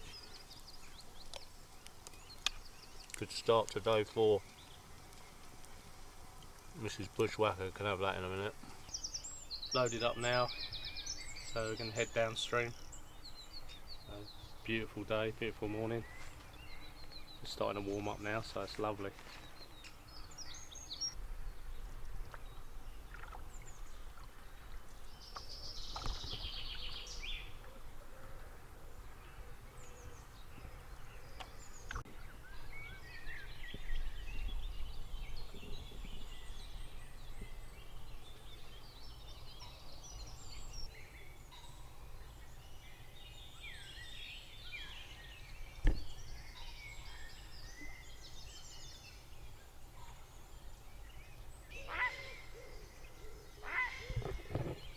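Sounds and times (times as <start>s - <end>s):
songbirds singing and chirping: 0.0s - 54.9s.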